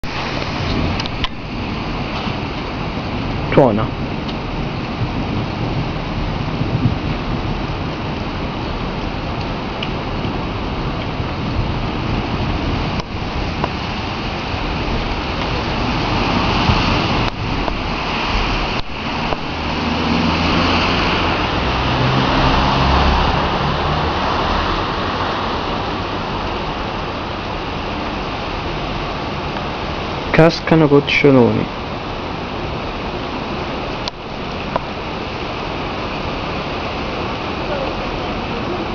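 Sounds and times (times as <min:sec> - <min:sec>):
low thunder rumble: 0:00.0 - 0:30.4
heavy rain falling: 0:00.0 - 0:38.9.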